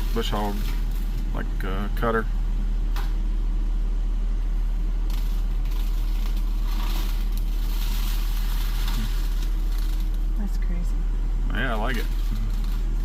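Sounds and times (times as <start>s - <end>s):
excavator diesel engine humming: 0.0s - 13.0s.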